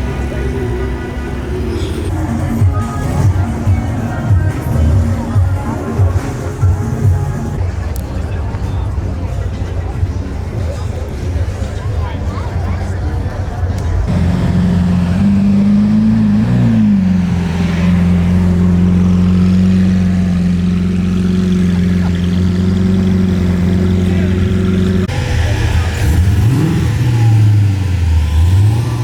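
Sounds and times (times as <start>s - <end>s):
car engine running and revving: 0.0s - 7.6s, 13.5s - 29.0s.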